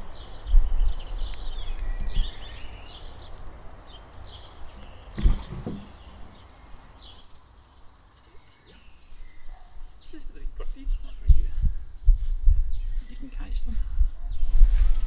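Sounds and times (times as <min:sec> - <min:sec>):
small birds chirping: 0:00.0 - 0:15.0
thump: 0:05.2 - 0:06.0.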